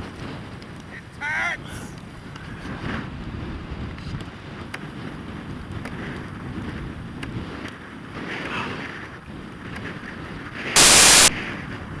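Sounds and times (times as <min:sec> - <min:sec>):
loud burst of hiss: 0:10.8 - 0:11.3.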